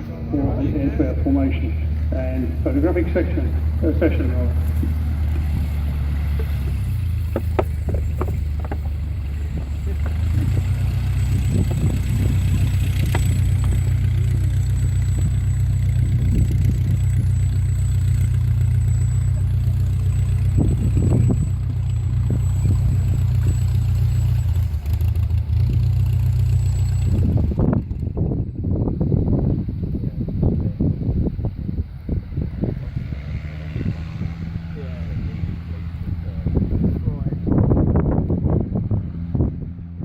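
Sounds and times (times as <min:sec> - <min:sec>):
propeller aircraft engines droning: 0:00.0 - 0:40.0.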